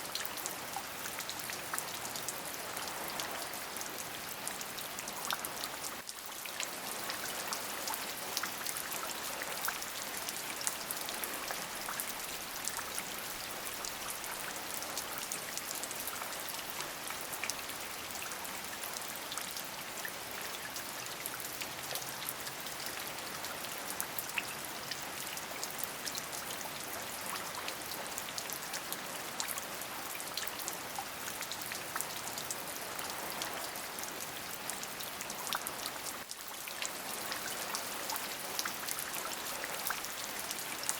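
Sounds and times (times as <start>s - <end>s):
steady rain: 0.0s - 40.9s.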